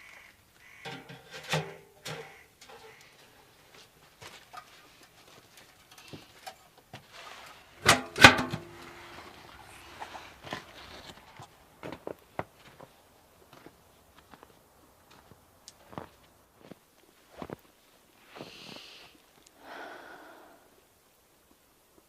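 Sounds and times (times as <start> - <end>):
objects knocking and clattering: 0.8 - 2.9, 7.8 - 8.9.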